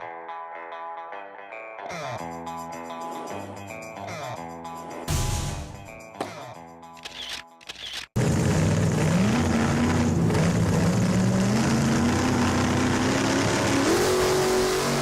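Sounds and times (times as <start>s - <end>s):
motorcycle engine revving: 8.2s - 15.0s.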